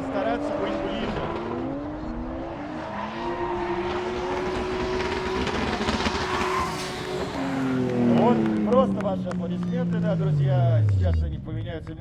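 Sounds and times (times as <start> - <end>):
car engines at high revs: 0.0 - 12.0.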